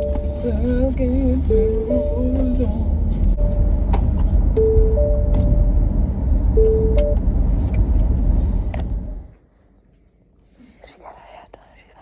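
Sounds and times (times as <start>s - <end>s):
car road rumble: 0.0s - 9.5s.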